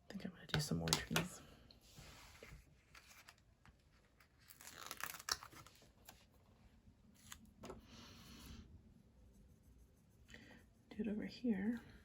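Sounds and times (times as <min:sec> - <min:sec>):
soft paper rustle: 0:01.8 - 0:07.9.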